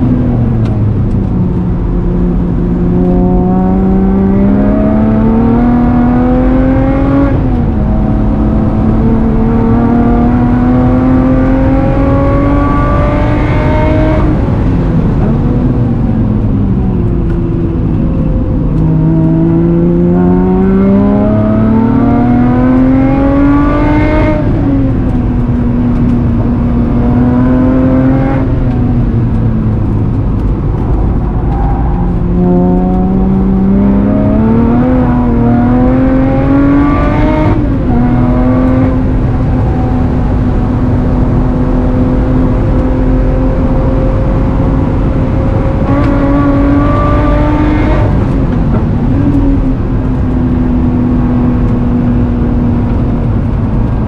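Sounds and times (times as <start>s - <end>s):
car engine accelerating: 0.0s - 54.0s
tyre and road noise: 0.0s - 54.0s.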